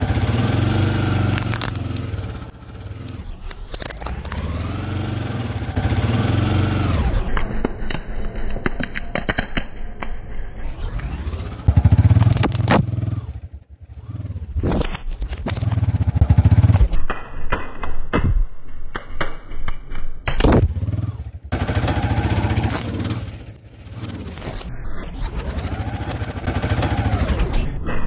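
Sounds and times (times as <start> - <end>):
auto rickshaw engine revving: 0.0 - 7.4, 10.9 - 14.7, 15.4 - 16.9, 20.6 - 24.5, 25.4 - 27.6
wheels crushing crunchy objects: 0.0 - 9.6, 11.0 - 13.4, 14.5 - 17.0, 20.3 - 24.6.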